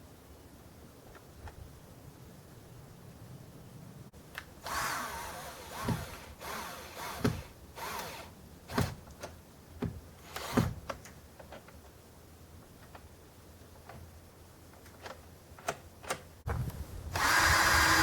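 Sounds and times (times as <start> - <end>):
power tool bursts: 4.6 - 8.8, 17.1 - 18.0.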